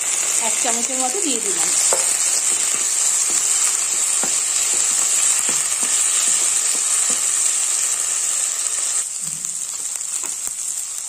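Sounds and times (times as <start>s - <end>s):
food sizzling in hot oil: 0.0s - 11.0s
spatula scraping and knocking pan: 1.4s - 8.2s.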